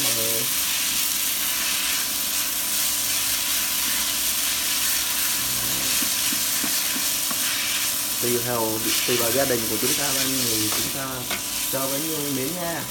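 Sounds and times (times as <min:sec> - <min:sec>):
noodles sizzling in hot oil: 0:00.0 - 0:12.9
stirring with spatula and chopsticks: 0:00.0 - 0:12.9.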